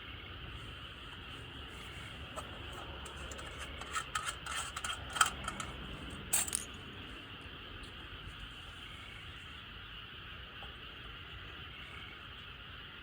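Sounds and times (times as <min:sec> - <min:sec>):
sharp clicks and light rattles: 0:02.4 - 0:06.7.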